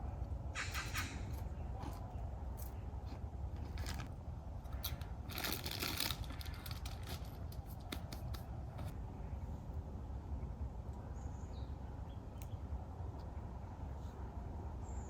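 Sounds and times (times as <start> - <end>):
low steady rumble: 0.0 - 15.0
crackling and rustling: 0.8 - 9.0.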